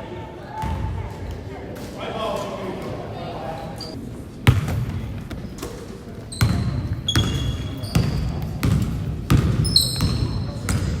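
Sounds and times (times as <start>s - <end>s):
sneaker squeaks: 3.8s - 4.0s, 6.3s - 8.8s, 9.6s - 11.0s
basketball bouncing on gym floor: 4.4s - 5.0s, 6.4s - 11.0s.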